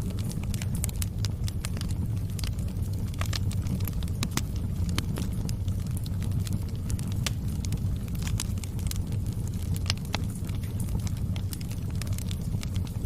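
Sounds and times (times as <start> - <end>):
fire rumbling: 0.0 - 13.0
logs crackling and popping: 0.0 - 13.0.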